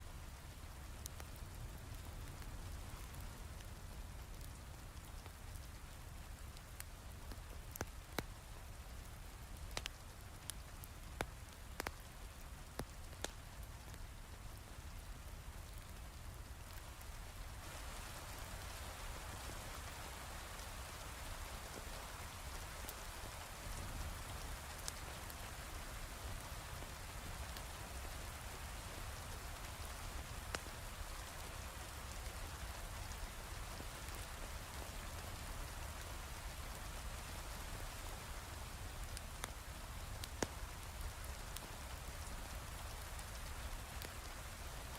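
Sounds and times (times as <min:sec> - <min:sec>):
wood fire crackling: 0:00.1 - 0:44.9
heavy rain: 0:10.9 - 0:44.9.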